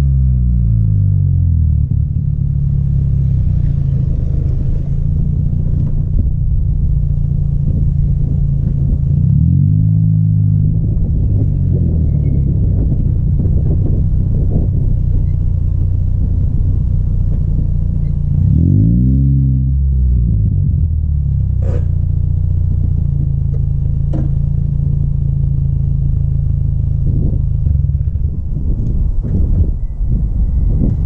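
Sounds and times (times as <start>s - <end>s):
car engine idling and revving: 0.0s - 31.0s.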